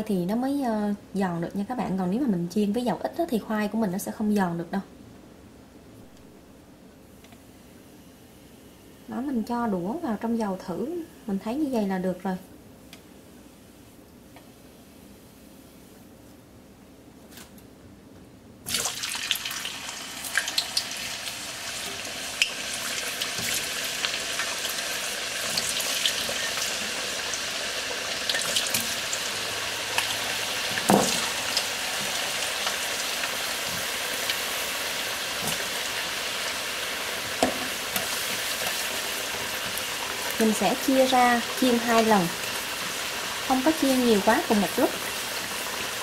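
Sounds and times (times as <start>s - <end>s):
potatoes sizzling in hot oil: 18.7s - 46.0s
oil popping and crackling: 21.8s - 43.6s.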